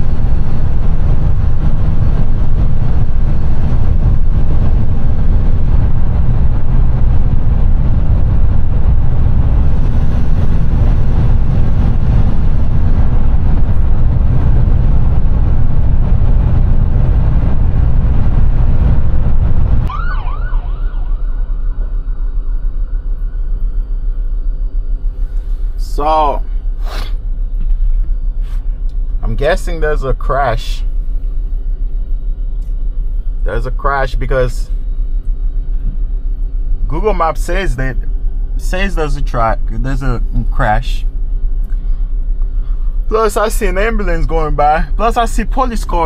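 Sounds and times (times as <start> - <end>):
road and engine rumble in truck cab: 0.0 - 46.0
siren yelps: 19.9 - 23.8.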